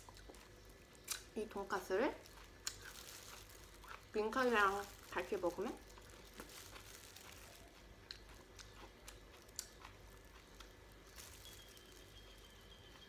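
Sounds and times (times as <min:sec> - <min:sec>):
faint crunching and chewing: 0:00.0 - 0:13.0.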